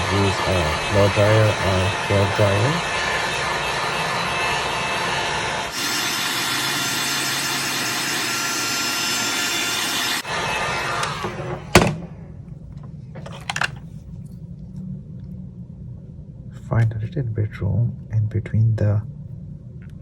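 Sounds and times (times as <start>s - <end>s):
hot-air blower running: 0.0s - 13.9s.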